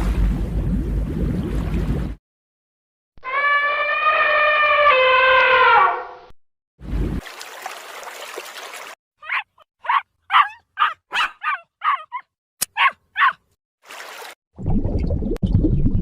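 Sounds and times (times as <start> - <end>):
dog yapping: 9.2 - 13.4.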